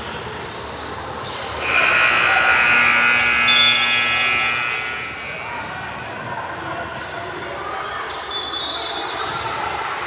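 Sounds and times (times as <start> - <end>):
scoreboard buzzer blaring: 1.6 - 5.9.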